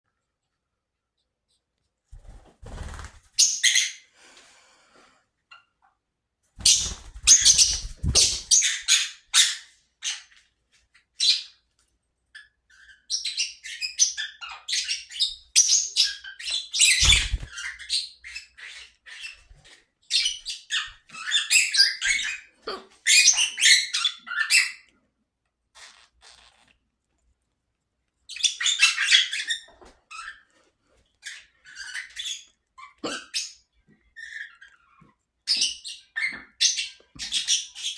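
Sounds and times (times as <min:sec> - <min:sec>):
bird chirping and chattering: 0:06.6 - 0:10.2, 0:12.4 - 0:19.5.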